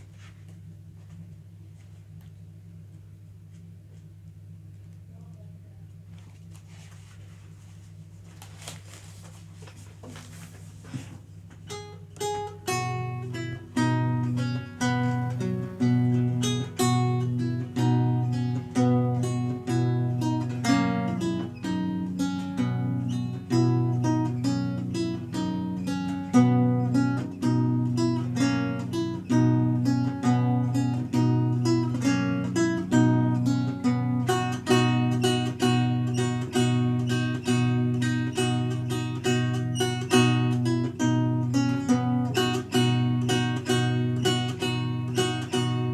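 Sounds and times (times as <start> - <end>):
solo lute playing: 11.7 - 45.9.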